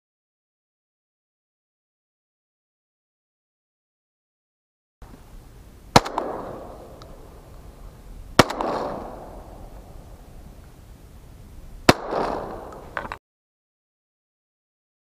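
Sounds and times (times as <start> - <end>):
shotgun shots with echo: 5.9 - 7.0, 8.4 - 9.8, 11.9 - 12.9.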